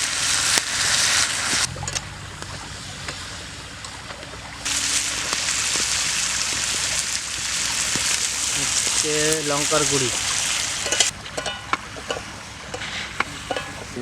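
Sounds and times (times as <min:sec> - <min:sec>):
potatoes sizzling in hot oil: 0:00.0 - 0:01.8, 0:04.6 - 0:14.0.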